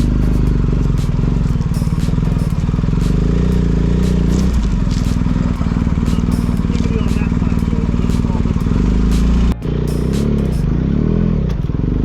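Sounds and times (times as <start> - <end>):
motorcycle engine running: 0.0 - 12.0
road noise: 0.0 - 12.0.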